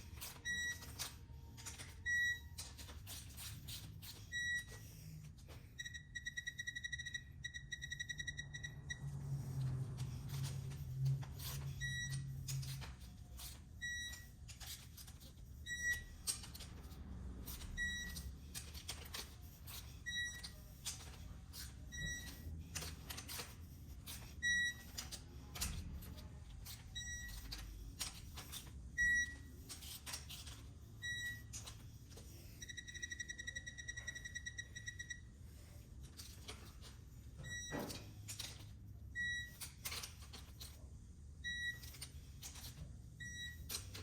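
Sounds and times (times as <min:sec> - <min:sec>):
high electronic beep: 0:05.8 - 0:09.1, 0:32.6 - 0:35.2.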